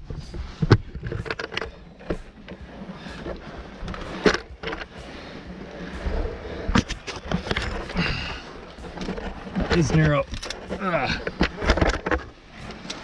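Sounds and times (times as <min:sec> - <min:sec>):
gear knocking and scraping on rock: 0:00.0 - 0:13.0.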